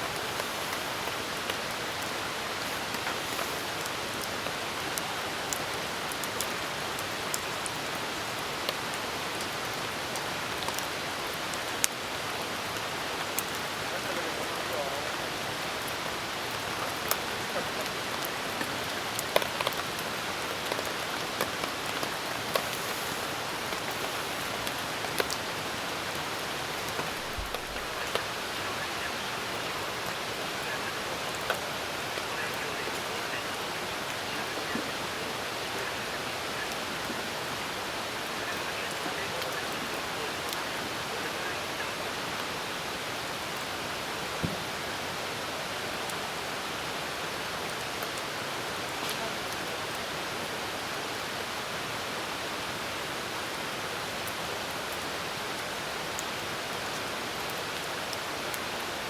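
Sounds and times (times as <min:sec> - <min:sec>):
wood fire crackling: 0:00.0 - 0:44.7
steady rain hiss: 0:00.0 - 0:59.0.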